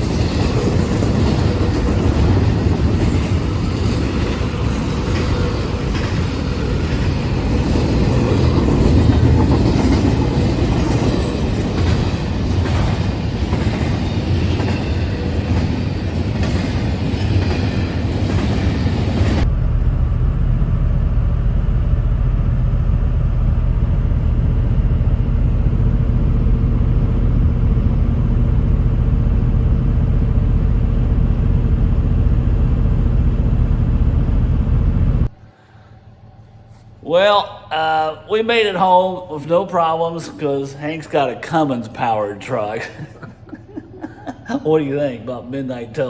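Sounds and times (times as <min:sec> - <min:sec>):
truck engine drone: 0:19.1 - 0:35.7.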